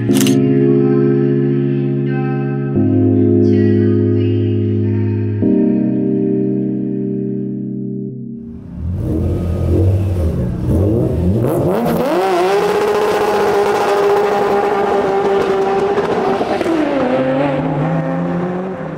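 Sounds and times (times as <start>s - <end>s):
sports car engine revving: 8.5s - 18.9s.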